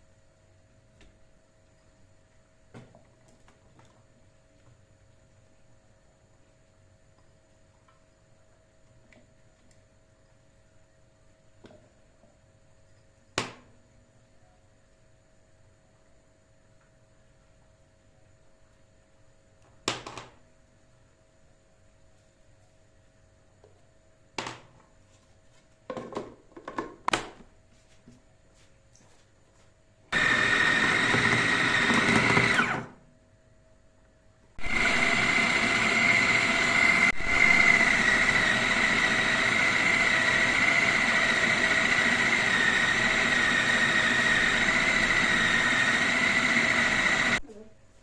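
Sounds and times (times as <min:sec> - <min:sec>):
blender motor whining: 0:30.2 - 0:32.9, 0:34.6 - 0:47.4.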